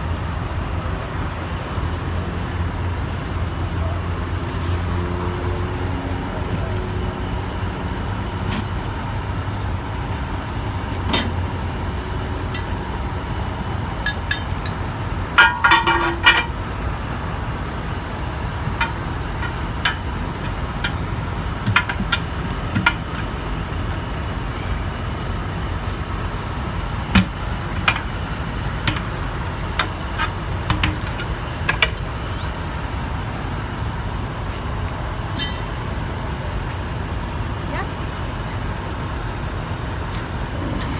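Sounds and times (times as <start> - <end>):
metal clanks and taps: 12.5 - 12.9, 14.0 - 14.8, 15.4 - 16.6, 35.4 - 35.8
rapid ringing metallic strikes: 12.5 - 13.0.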